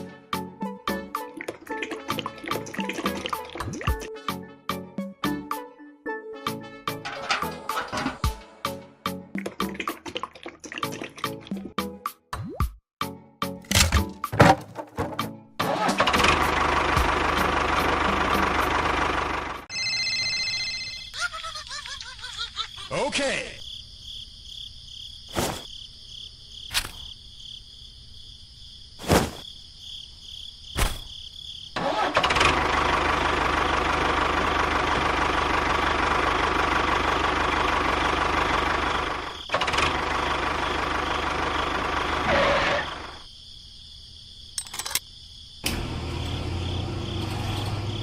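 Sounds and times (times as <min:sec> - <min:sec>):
small engine running: 0:15.7 - 0:19.7, 0:31.8 - 0:43.2, 0:45.6 - 0:48.0.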